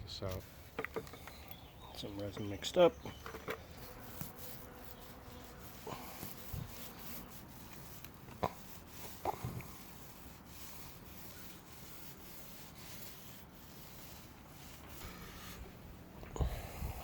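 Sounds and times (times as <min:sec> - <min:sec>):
resin rubbed into fiberglass: 0:03.7 - 0:16.1.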